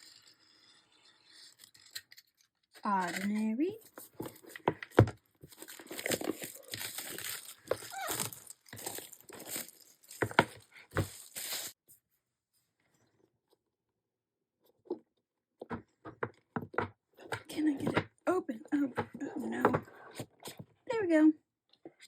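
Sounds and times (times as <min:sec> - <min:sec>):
package handling clicks and knocks: 0:04.0 - 0:11.5
plastic shrink-wrap tearing: 0:05.5 - 0:11.8.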